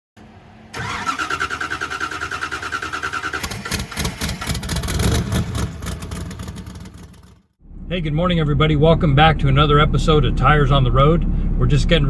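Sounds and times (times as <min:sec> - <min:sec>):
engine running unevenly: 0:00.2 - 0:12.0
engine starter cranking: 0:00.7 - 0:07.4.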